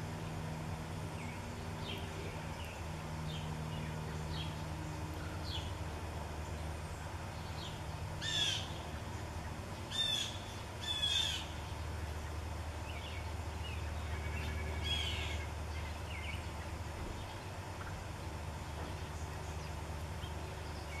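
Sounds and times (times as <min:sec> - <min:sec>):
steady low hum: 0:00.0 - 0:21.0
harsh bird calls: 0:06.4 - 0:18.0.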